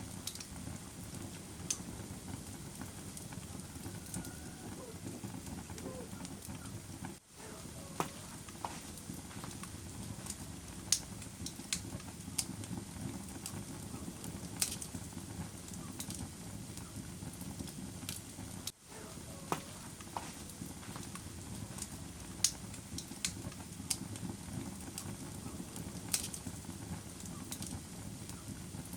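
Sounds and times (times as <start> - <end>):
fire crackling and popping: 0.0 - 28.9
low rush of flames: 0.0 - 28.9.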